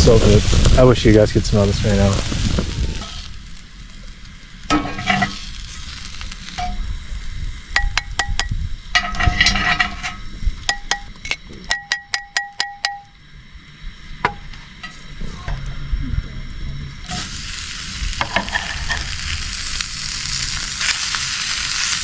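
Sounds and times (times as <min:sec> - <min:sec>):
onions sizzling in a pan: 0:00.0 - 0:11.7, 0:17.0 - 0:22.0
stirring scraping in pan: 0:04.6 - 0:06.4, 0:17.1 - 0:22.0
sharp ringing taps: 0:07.8 - 0:08.6, 0:10.6 - 0:13.2.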